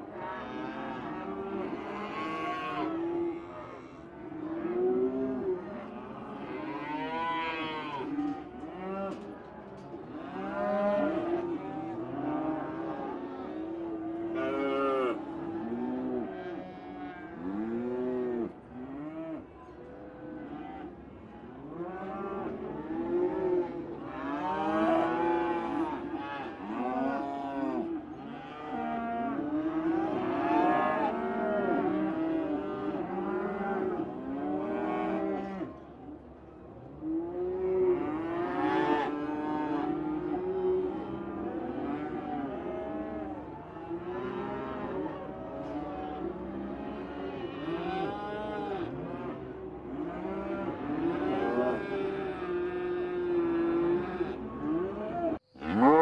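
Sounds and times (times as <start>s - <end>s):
cows mooing: 23.1s - 35.6s, 37.5s - 56.0s.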